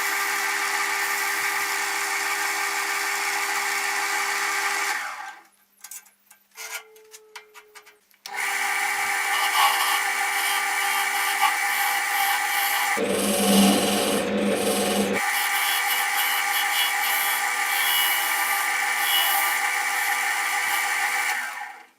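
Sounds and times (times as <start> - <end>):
wood lathe humming: 8.3 - 21.8.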